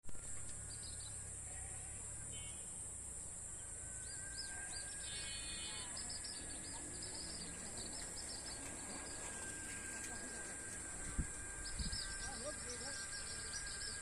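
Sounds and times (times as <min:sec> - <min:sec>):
high-pitched insect drone: 0:00.6 - 0:14.0
birds chirping: 0:03.4 - 0:14.0
bird trill: 0:03.9 - 0:14.0.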